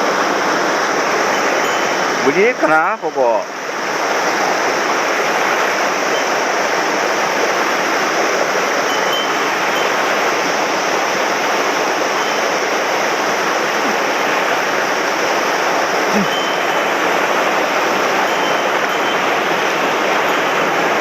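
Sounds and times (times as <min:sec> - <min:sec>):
stream rushing: 0:00.0 - 0:21.0.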